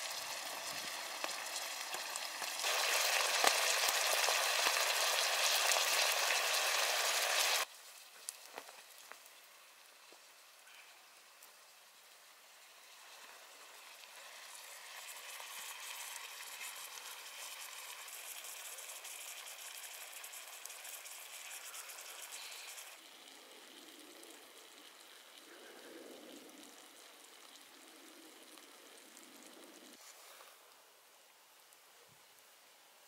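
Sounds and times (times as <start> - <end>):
steak sizzling in a skillet: 0.0 - 25.4.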